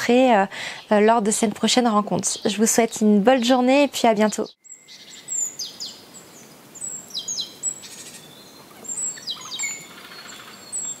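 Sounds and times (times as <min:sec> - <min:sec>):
small birds singing: 0:00.0 - 0:11.0
faint steady hiss: 0:04.6 - 0:11.0.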